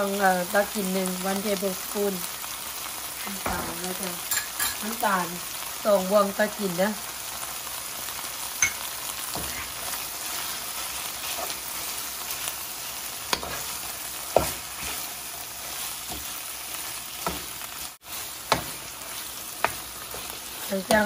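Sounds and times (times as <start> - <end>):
chicken sizzling in a frying pan: 0.0 - 21.0
metal spoon scraping a pan: 8.6 - 12.6, 13.2 - 21.0.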